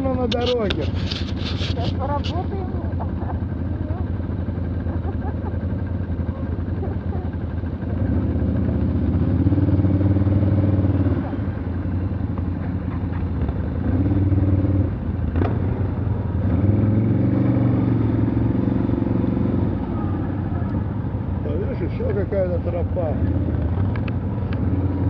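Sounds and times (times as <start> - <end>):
off-road vehicle engine revving: 0.0 - 25.0.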